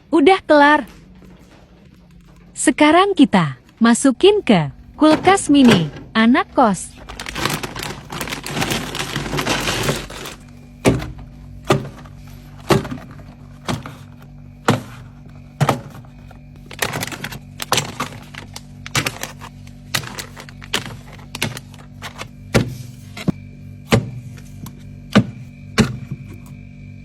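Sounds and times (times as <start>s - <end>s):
steady low hum: 0.0s - 27.0s
containers knocking on shelves: 5.0s - 6.3s, 7.0s - 26.5s
packaging rustling: 6.9s - 23.3s.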